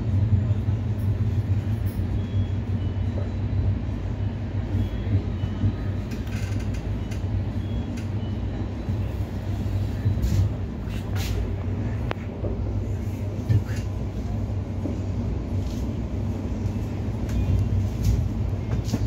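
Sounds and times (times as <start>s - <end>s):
train coach rumble and hiss: 7.9s - 19.0s.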